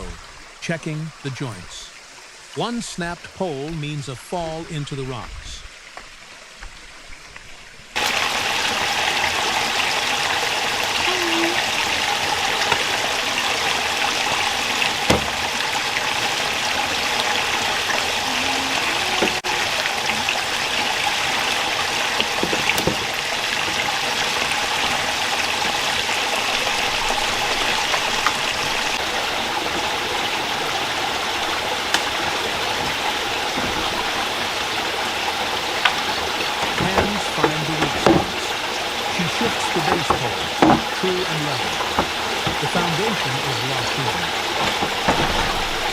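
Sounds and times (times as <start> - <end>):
rocky stream rushing: 8.0 - 45.9.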